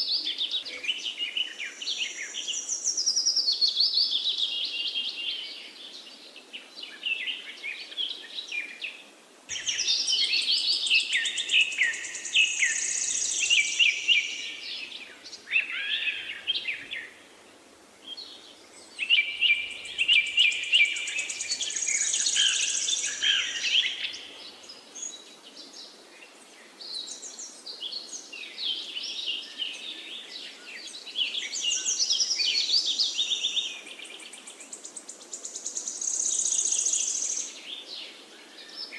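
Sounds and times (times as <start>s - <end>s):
faint steady hiss: 0.0s - 38.9s
songbirds twittering and chirping: 0.0s - 38.9s.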